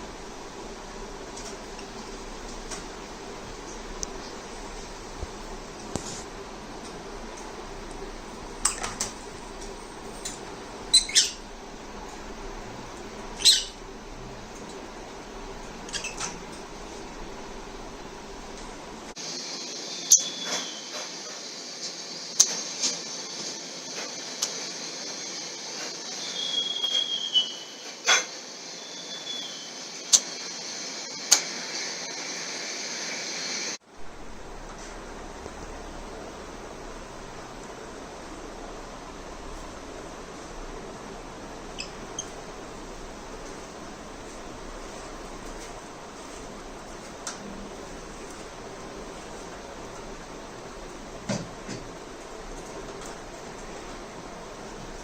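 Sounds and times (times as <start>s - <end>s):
lovebirds chattering: 10.9s - 11.5s, 13.3s - 13.8s, 19.8s - 21.0s
lovebirds squawking: 13.4s - 13.8s
thin whistle-like note: 19.6s - 21.1s, 26.0s - 30.3s.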